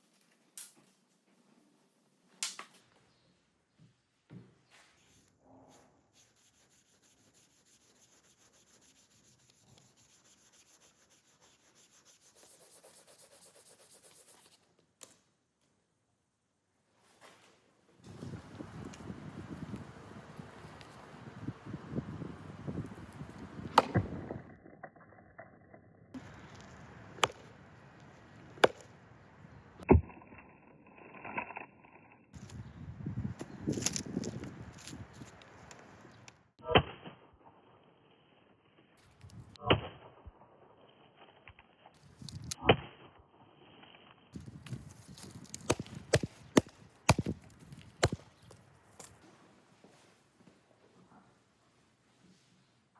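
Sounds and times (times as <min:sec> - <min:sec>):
hand rubbing strokes on knife: 0:05.0 - 0:14.6
sharp chopping knocks: 0:23.7 - 0:24.2, 0:27.2 - 0:27.5, 0:28.6 - 0:28.9, 0:45.2 - 0:48.6.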